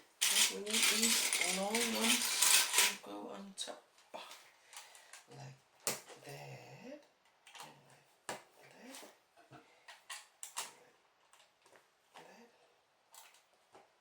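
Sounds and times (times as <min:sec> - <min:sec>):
plastic bricks clicking and clattering: 0:00.2 - 0:03.0.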